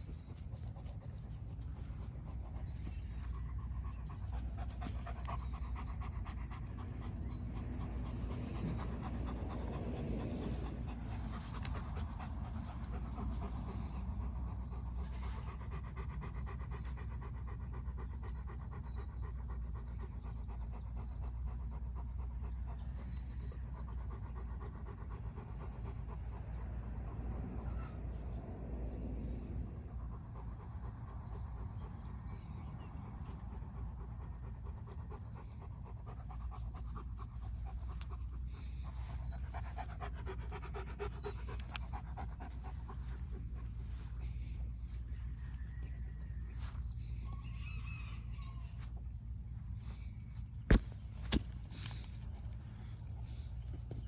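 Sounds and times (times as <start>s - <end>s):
dog panting: 0.0s - 27.5s, 29.9s - 54.0s.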